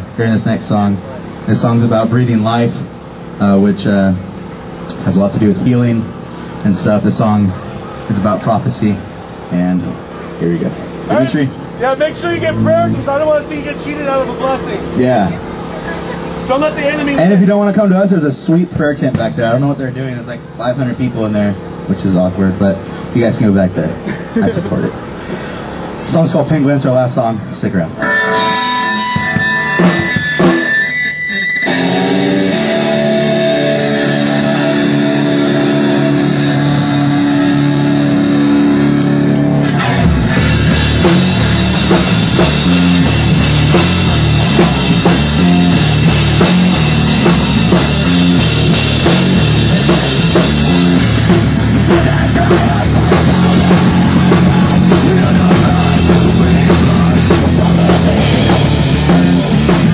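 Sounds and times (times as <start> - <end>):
guitar holding chords: 9.0 - 18.0, 27.9 - 59.9
rock band playing loudly: 9.1 - 18.0, 28.0 - 59.9.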